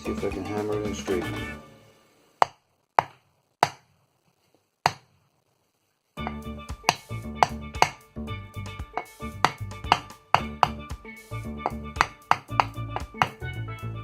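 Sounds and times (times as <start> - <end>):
music with percussive beat: 0.0 - 1.6, 6.2 - 14.0
hammer blows on wood block: 6.2 - 8.0, 8.9 - 10.9, 11.6 - 13.4.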